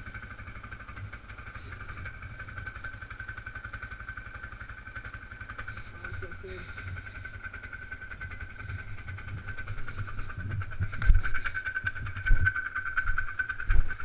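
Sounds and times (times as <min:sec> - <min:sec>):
atv engine running: 0:00.0 - 0:14.0
high whine: 0:00.0 - 0:14.0.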